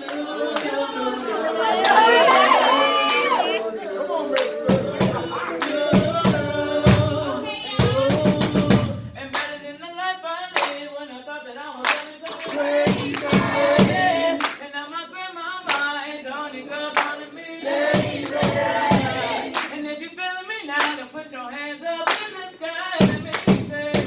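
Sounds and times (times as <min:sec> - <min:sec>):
hand claps: 0:00.0 - 0:00.8, 0:01.8 - 0:03.4, 0:04.4 - 0:07.1, 0:07.8 - 0:09.6, 0:10.6 - 0:10.8, 0:11.8 - 0:14.7, 0:15.7 - 0:16.0, 0:17.0 - 0:17.2, 0:17.9 - 0:19.9, 0:20.8 - 0:21.1, 0:22.0 - 0:22.4, 0:23.0 - 0:24.0
vocal group singing: 0:00.0 - 0:24.0.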